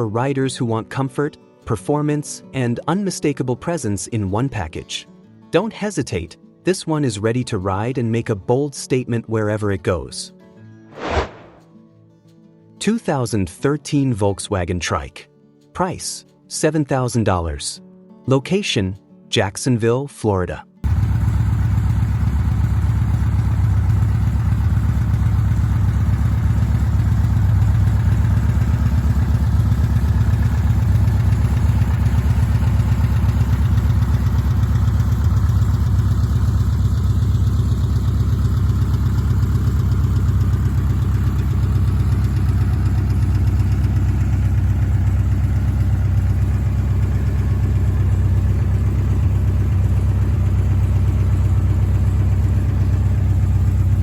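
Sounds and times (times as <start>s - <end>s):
engine idling: 20.8s - 54.0s.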